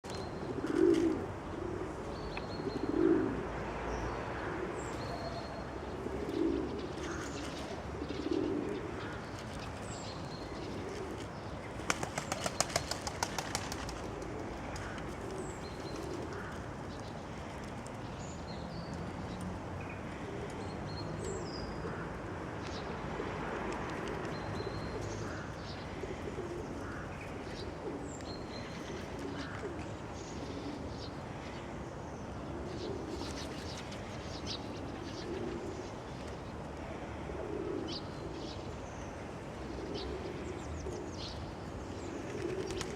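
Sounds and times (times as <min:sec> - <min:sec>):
pigeons cooing: 0:00.3 - 0:03.7, 0:04.4 - 0:09.4, 0:10.4 - 0:16.7, 0:24.0 - 0:31.7, 0:32.4 - 0:36.1, 0:36.7 - 0:38.8, 0:39.7 - 0:41.3, 0:42.0 - 0:42.9
wings clapping and flapping: 0:11.9 - 0:14.1.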